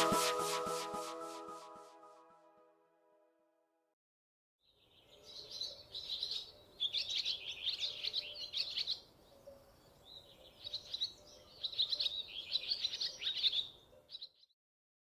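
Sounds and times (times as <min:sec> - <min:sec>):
small birds chirping: 0:04.7 - 0:14.5.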